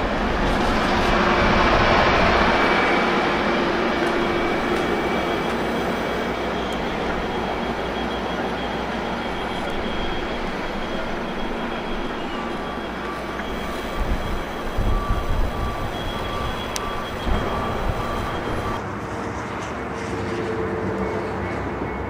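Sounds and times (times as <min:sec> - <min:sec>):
train wheels rumbling: 0:00.0 - 0:22.0
faint thin squeal: 0:04.2 - 0:18.8.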